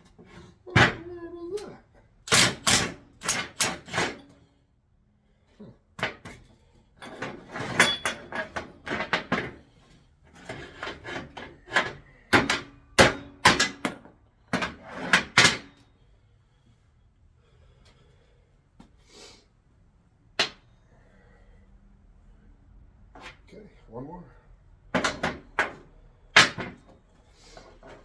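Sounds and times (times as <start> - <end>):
hand tools knocking and clanking: 2.3 - 4.2, 7.0 - 9.6, 10.4 - 15.8, 24.9 - 27.0.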